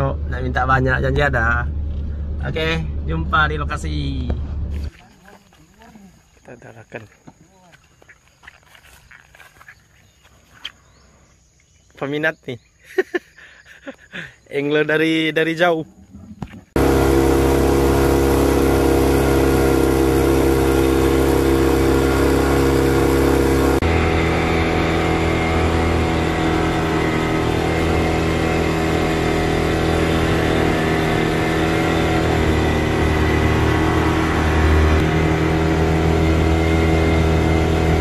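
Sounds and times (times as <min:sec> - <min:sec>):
vehicle engine running: 0:00.0 - 0:05.8, 0:16.7 - 0:38.0.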